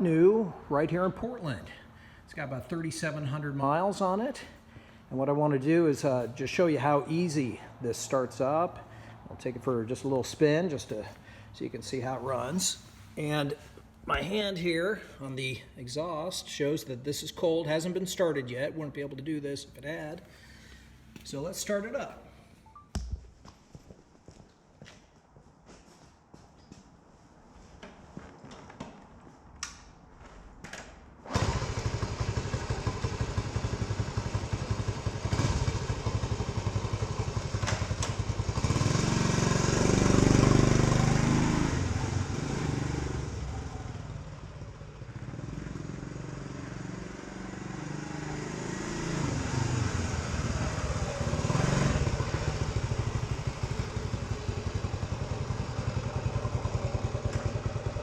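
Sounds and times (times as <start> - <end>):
motorcycle engine starting and revving: 30.3 - 58.0.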